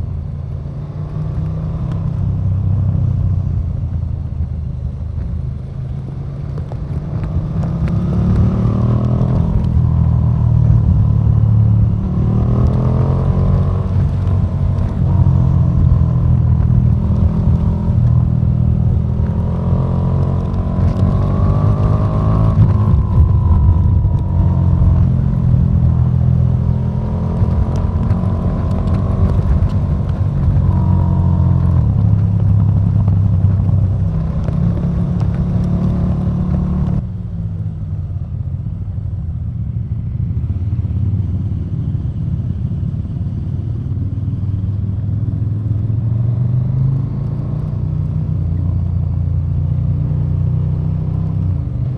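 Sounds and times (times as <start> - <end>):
motorcycle engine revving: 6.4 - 37.1.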